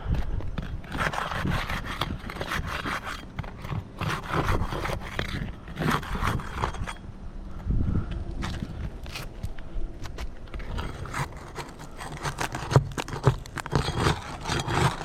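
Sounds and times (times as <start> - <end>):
roof shingles scraping and rustling: 8.5 - 15.0.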